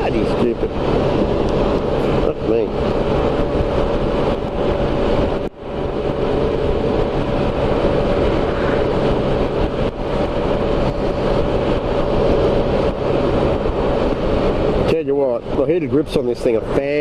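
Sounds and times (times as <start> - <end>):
motorcycle engine cruising: 0.0 - 17.0
road noise: 0.0 - 17.0.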